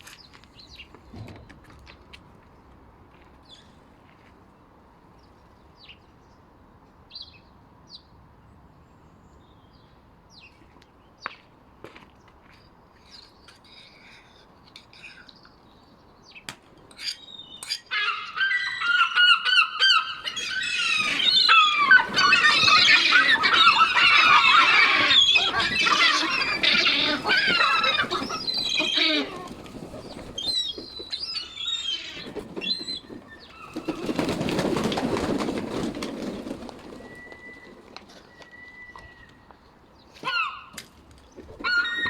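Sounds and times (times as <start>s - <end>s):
seabirds calling: 17.0s - 40.8s.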